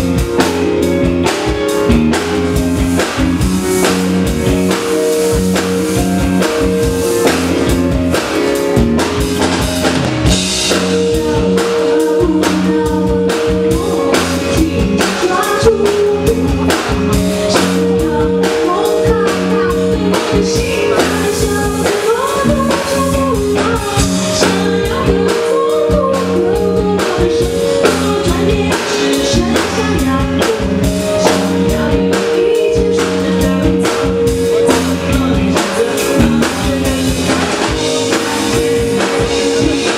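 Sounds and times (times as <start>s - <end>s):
drum kit beat: 0.0s - 39.9s
live rock band playing: 0.0s - 39.9s
person singing: 10.2s - 39.9s.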